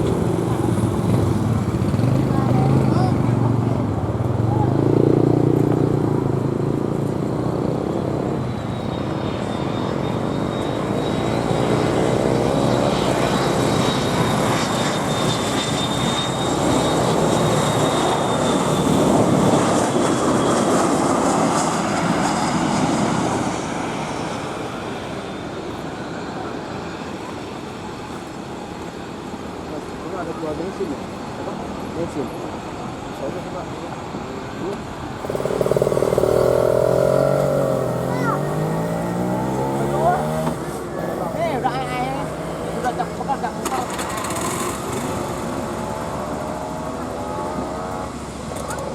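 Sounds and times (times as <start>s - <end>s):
airliner engines roaring: 0.0s - 48.9s.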